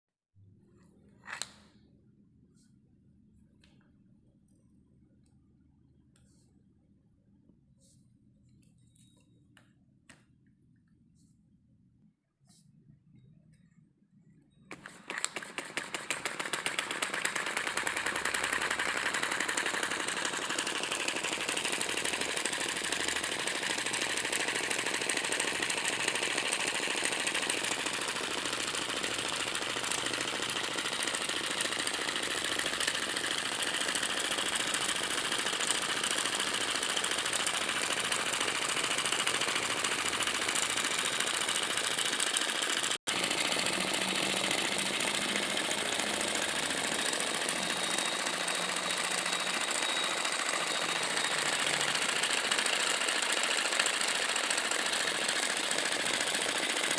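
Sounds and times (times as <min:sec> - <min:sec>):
small engine running with rattle: 0:14.6 - 0:56.9.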